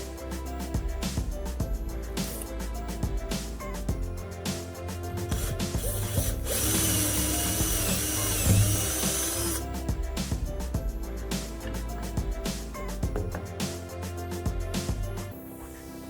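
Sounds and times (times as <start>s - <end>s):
background music: 0.0s - 16.0s
electric power tool whining: 5.4s - 9.6s.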